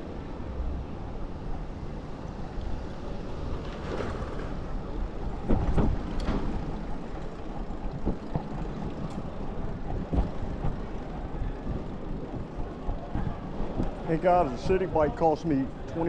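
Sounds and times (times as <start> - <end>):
electric bike riding rumble: 0.0 - 16.0
bike rattling: 0.8 - 16.0.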